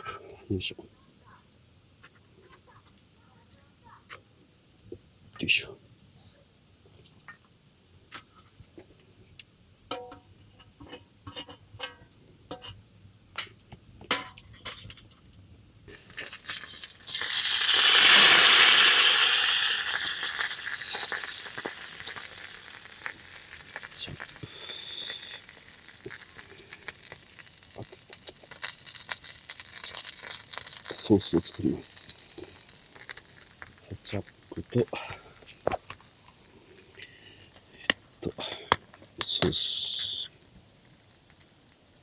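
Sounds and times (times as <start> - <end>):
hot pan sizzling: 15.9 - 40.3.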